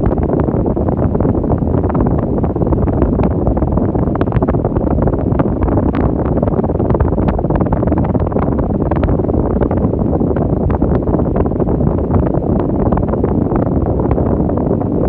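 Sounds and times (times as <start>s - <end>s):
fan airflow buffeting microphone: 0.0s - 15.0s.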